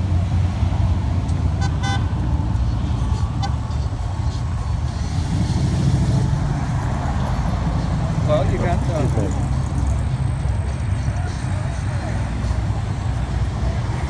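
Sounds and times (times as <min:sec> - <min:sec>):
traffic rumble: 0:00.0 - 0:14.0
car horn honks: 0:01.5 - 0:02.3.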